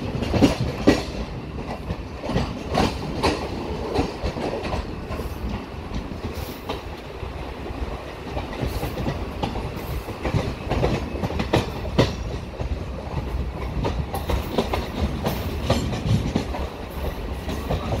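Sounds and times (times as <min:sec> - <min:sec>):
train low rumble: 0:00.0 - 0:18.0
wheels clacking over rail joints: 0:00.0 - 0:18.0.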